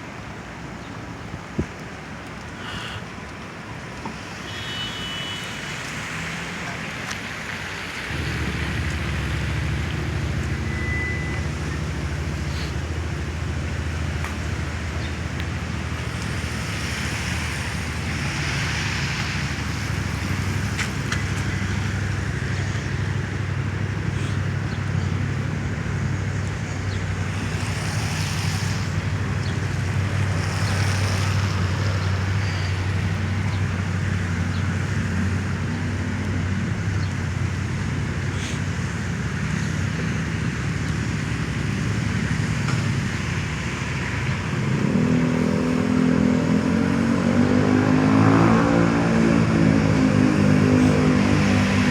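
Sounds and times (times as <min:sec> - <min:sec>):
tyre hiss on wet road: 0:02.5 - 0:03.3, 0:04.1 - 0:35.2, 0:38.0 - 0:48.0
low engine rumble: 0:07.8 - 0:47.3.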